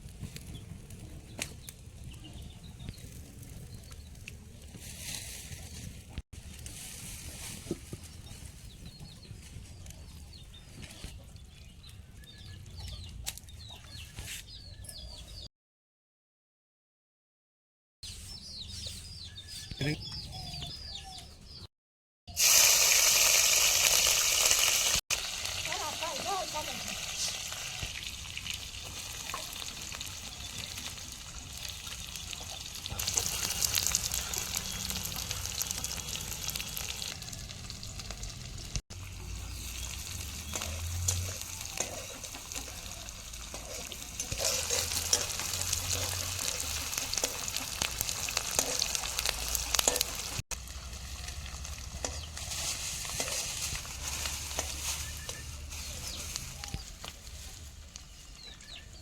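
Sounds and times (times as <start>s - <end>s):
food sizzling in a pan: 22.3s - 38.4s, 39.0s - 56.9s.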